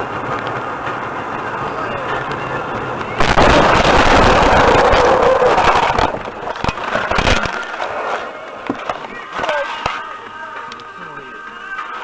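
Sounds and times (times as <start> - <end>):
loud rushing vehicle: 0.0 - 9.0.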